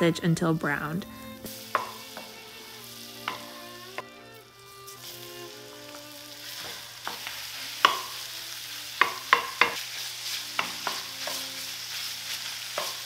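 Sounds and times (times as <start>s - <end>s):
sausage sizzling in a skillet: 0.8s - 13.0s
wooden spoon knocking a pan: 1.7s - 2.4s, 3.2s - 4.1s, 6.6s - 8.2s, 8.9s - 9.8s, 10.5s - 11.5s, 12.7s - 13.0s.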